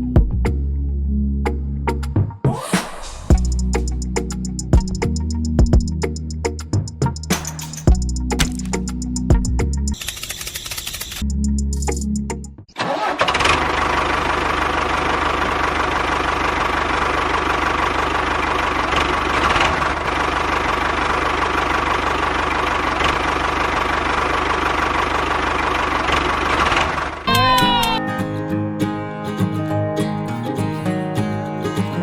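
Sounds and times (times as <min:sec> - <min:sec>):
guitar music: 0:27.3 - 0:32.0.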